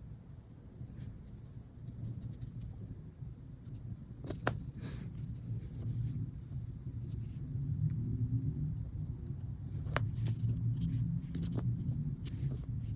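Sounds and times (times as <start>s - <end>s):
steady low rumble: 0.0s - 12.9s
light scratching and handling: 0.8s - 3.0s, 3.6s - 7.5s, 9.3s - 12.9s.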